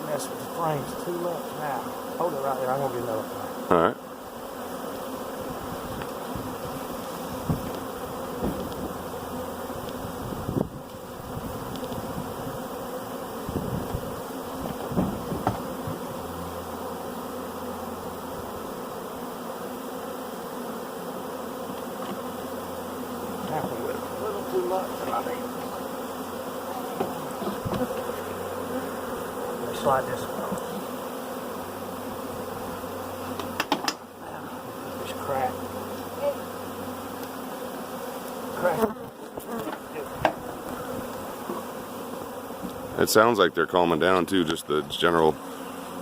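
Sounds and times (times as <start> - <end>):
bee swarm buzzing: 0.0 - 46.0
short knocks: 8.4 - 8.7, 14.6 - 16.0.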